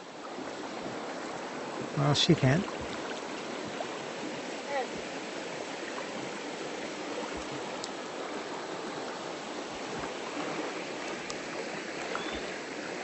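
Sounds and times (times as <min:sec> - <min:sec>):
river water rushing: 0:00.0 - 0:13.0
faint clicks: 0:11.0 - 0:11.4.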